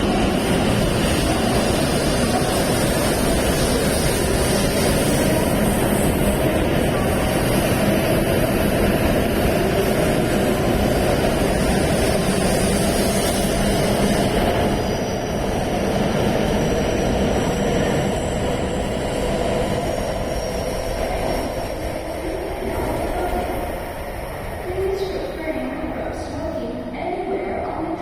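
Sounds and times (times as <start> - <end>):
train running noise: 0.0 - 28.0.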